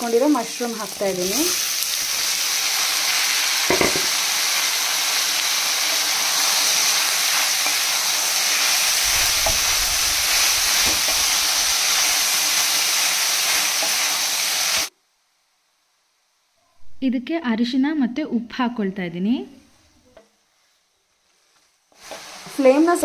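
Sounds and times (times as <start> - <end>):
mushrooms sizzling in hot oil: 0.0 - 15.5, 21.8 - 23.0.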